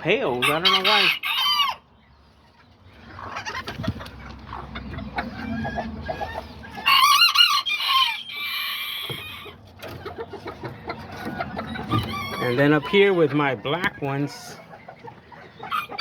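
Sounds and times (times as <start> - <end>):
chickens clucking: 0.0 - 16.0
rooster crowing: 6.8 - 9.5.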